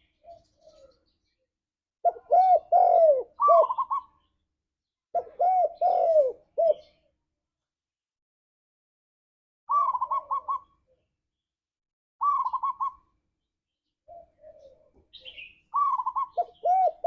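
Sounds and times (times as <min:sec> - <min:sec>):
dove cooing: 0:00.0 - 0:01.1, 0:02.0 - 0:04.3, 0:05.1 - 0:07.1, 0:09.7 - 0:11.0, 0:12.2 - 0:13.1, 0:14.1 - 0:17.0.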